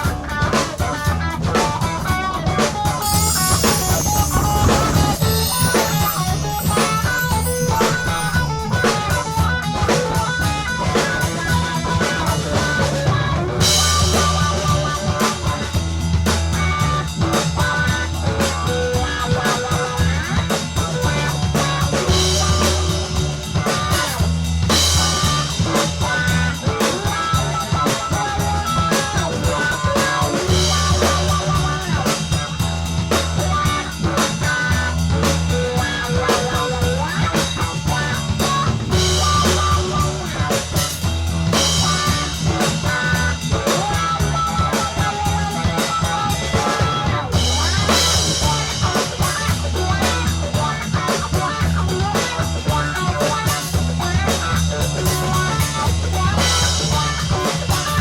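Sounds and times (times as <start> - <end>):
bass guitar: 0.0 - 58.0
drums: 0.0 - 58.0
electric guitar: 0.0 - 58.0.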